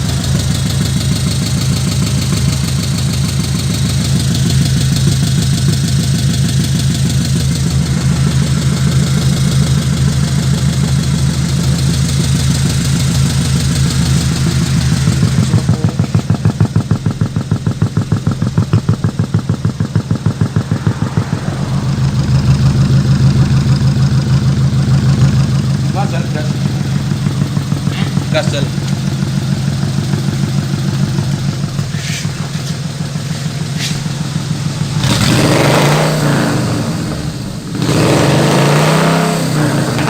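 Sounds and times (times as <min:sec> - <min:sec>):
toy truck engine idling: 0:00.0 - 0:40.0.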